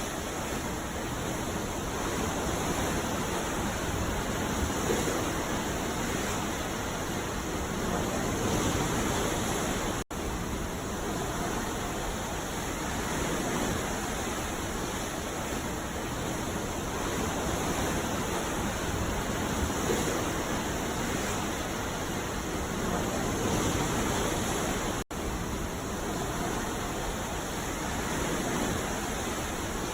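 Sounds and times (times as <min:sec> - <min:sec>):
ocean waves washing on beach: 0:00.0 - 0:29.9.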